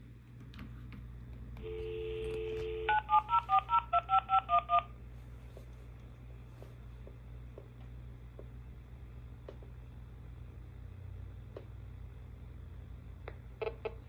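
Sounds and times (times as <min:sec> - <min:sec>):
telephone dial tone: 0:01.6 - 0:04.9.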